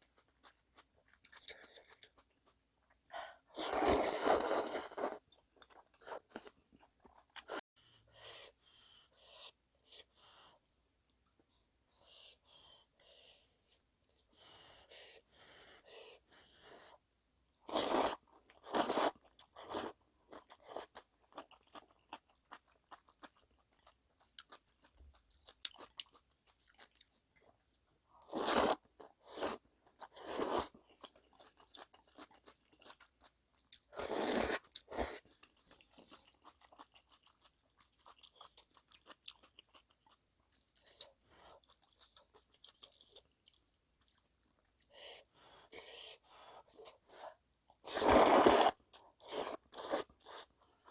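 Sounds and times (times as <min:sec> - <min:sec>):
chewing and crunching: 0:00.0 - 0:03.0, 0:18.6 - 0:27.6, 0:28.5 - 0:44.9.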